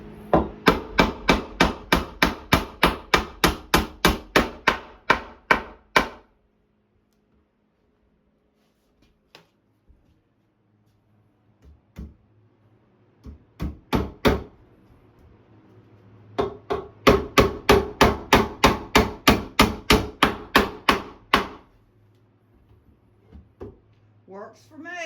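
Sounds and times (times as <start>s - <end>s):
hammer driving nails into wood: 0.6s - 6.3s, 16.4s - 21.6s.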